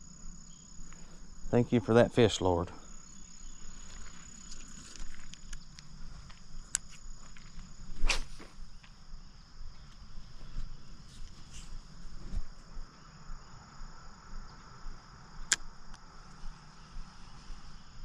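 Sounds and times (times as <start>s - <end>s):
insects chirring: 0.0s - 18.0s
small clicks and rustles: 3.9s - 7.7s
loud brief swish: 8.0s - 8.5s.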